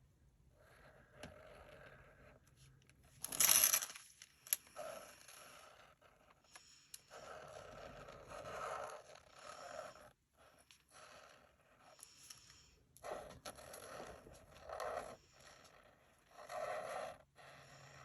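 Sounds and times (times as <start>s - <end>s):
marker scraping across card: 7.1s - 18.0s.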